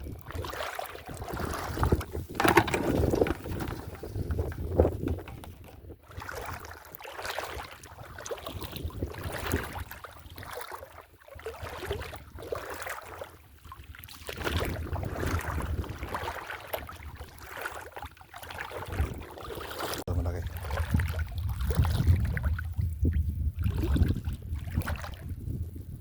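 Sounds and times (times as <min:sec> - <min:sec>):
wind buffeting microphone: 0:00.0 - 0:06.7, 0:07.8 - 0:10.0, 0:14.4 - 0:16.4, 0:18.8 - 0:19.4, 0:20.1 - 0:26.0
water sloshing around boat: 0:00.0 - 0:25.8.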